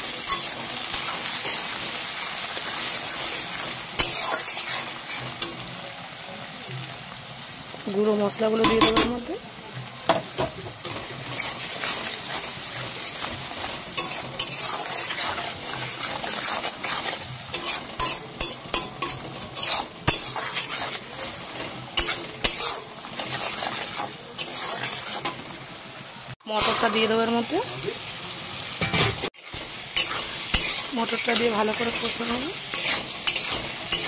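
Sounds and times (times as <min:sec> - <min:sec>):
spatula scraping a pan: 0:00.0 - 0:05.6, 0:10.8 - 0:25.4, 0:28.8 - 0:34.0
food sizzling in hot oil: 0:00.0 - 0:34.0.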